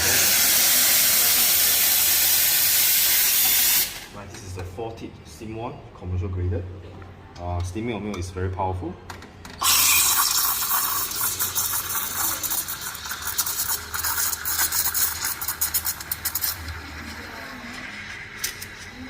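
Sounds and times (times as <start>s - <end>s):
espresso steam wand hissing: 0.0s - 4.1s, 9.6s - 19.0s.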